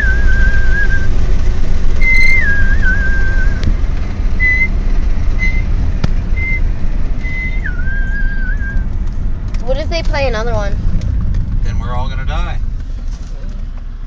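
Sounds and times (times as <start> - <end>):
person whistling: 0.0 - 1.2, 2.0 - 3.6, 4.4 - 4.7, 5.4 - 5.7, 6.4 - 8.8
car rumble: 0.0 - 14.0.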